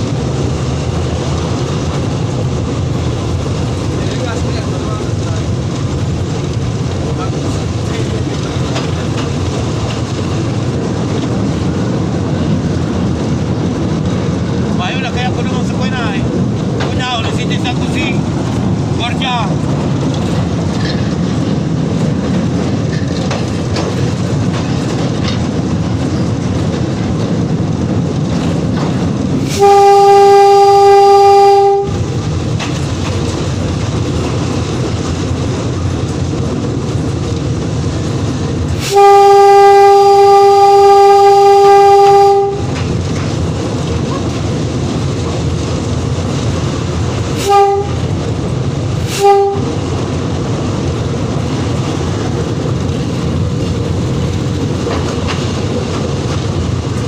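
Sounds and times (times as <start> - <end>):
train rumbling: 0.0 - 57.0
train horn blasts: 29.5 - 32.0, 38.8 - 42.8, 47.4 - 48.1, 49.1 - 49.8.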